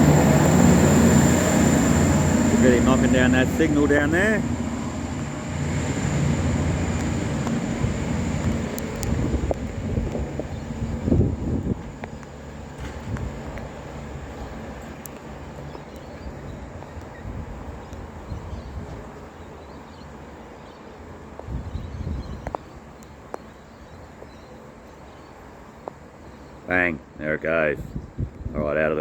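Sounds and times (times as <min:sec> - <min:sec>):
wind buffeting microphone: 0:00.0 - 0:19.3, 0:21.4 - 0:22.8, 0:27.8 - 0:28.8
rain hiss: 0:00.0 - 0:21.4
diesel train rumble: 0:00.0 - 0:27.2.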